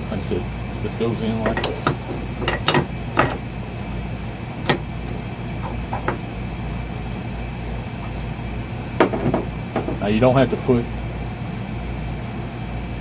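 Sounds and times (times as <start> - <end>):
steady low hum: 0.0 - 13.0
steel parts clicking: 1.3 - 3.5.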